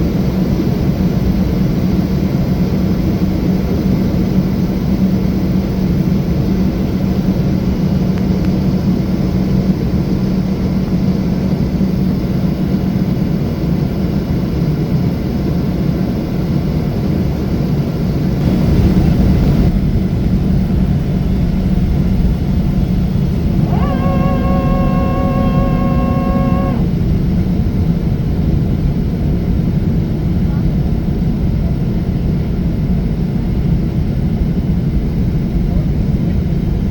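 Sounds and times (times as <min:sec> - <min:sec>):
airliner cabin rumble: 0:18.4 - 0:27.2
low hum: 0:22.6 - 0:27.1
steady pitched tone: 0:23.3 - 0:27.0.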